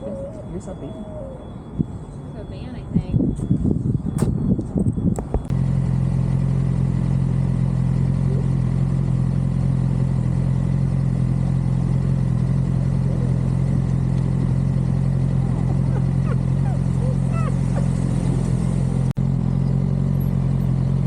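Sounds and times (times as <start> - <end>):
motorcycle engine running: 4.5 - 21.0.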